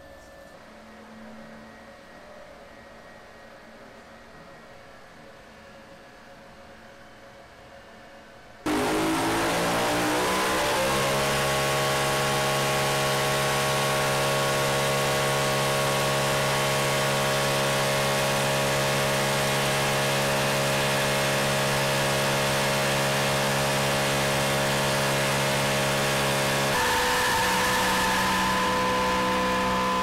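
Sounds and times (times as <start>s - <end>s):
car engine running: 8.7s - 30.0s.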